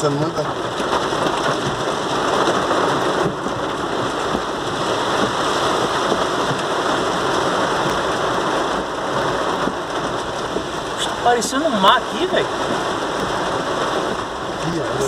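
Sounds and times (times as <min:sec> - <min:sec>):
heavy rain on car roof: 0:00.0 - 0:15.0.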